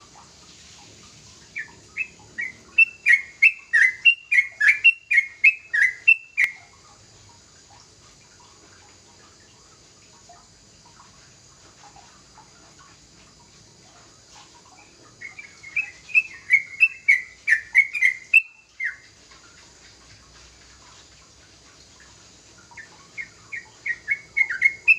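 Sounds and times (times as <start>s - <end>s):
bird singing rapid clear notes: 1.5s - 6.7s, 15.2s - 19.1s, 22.7s - 24.9s.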